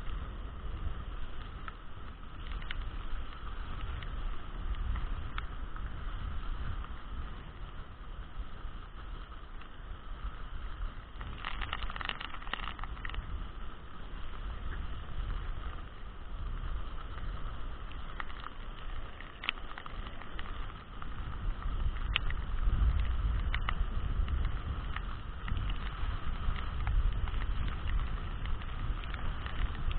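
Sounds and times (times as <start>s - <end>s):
harsh crackle: 0.0s - 29.9s
heavy rain: 0.0s - 29.9s
wind buffeting microphone: 0.0s - 29.9s
sharp ticks: 11.2s - 13.4s, 17.0s - 29.9s.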